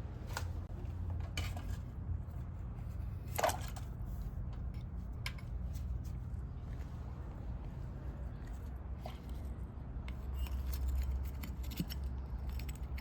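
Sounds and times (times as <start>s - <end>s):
steady low hum: 0.0s - 13.0s
small metal parts clinking: 10.1s - 13.0s.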